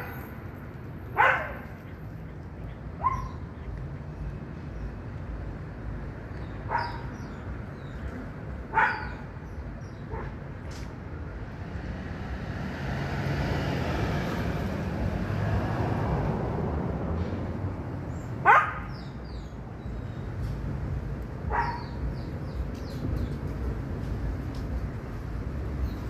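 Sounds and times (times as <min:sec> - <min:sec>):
dog barking: 0:01.1 - 0:01.8, 0:03.0 - 0:03.4, 0:06.7 - 0:07.1, 0:08.7 - 0:09.3, 0:18.4 - 0:19.0, 0:21.5 - 0:22.0.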